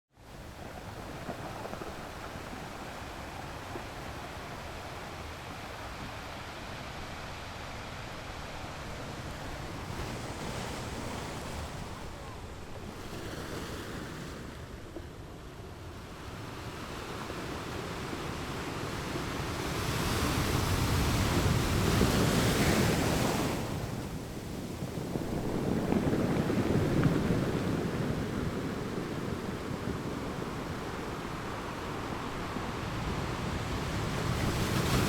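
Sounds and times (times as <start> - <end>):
lake water washing: 0.3 - 14.3, 16.3 - 35.0
wind rushing over microphone: 17.2 - 35.0.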